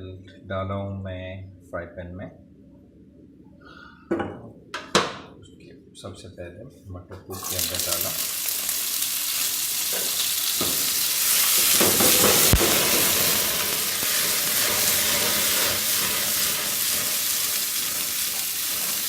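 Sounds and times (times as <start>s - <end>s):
peas sizzling in hot oil: 7.4s - 19.0s.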